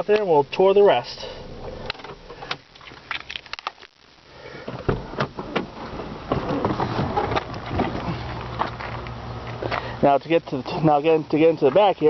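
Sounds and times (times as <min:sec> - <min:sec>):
thump: 0:04.7 - 0:05.7
knocks and rustling: 0:04.7 - 0:09.0.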